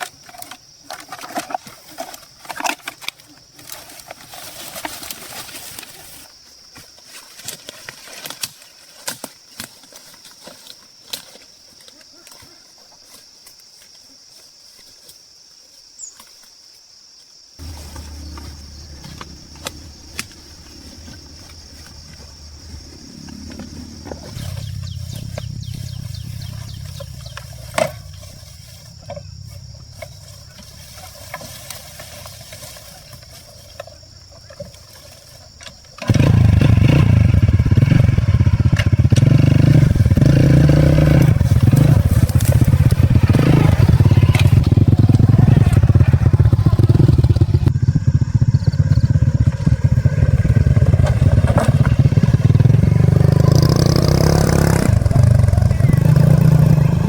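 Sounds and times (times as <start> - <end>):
engine running with clatter: 17.6 - 22.4, 36.0 - 57.0.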